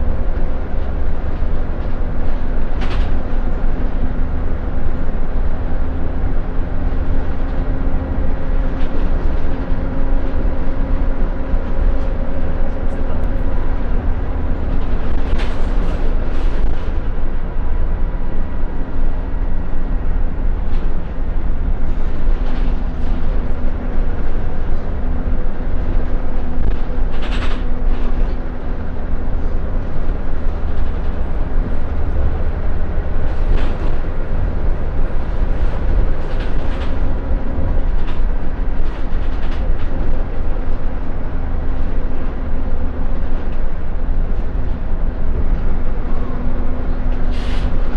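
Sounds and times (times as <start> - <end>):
bus engine and road rumble: 0.0 - 47.9.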